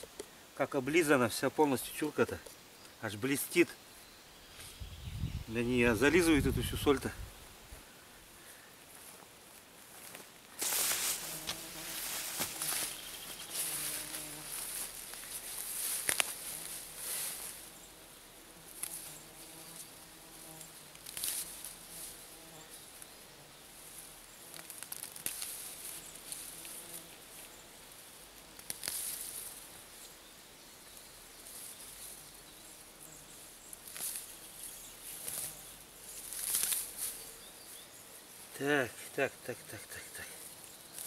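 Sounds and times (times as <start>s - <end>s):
insects chirring: 8.9s - 41.0s.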